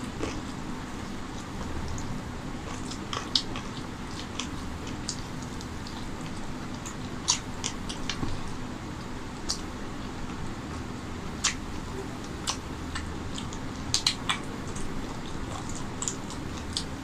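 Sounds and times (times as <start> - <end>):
chewing and biting meat: 0.0 - 17.0
wet mouth clicks and smacks: 11.4 - 11.6, 12.2 - 16.9.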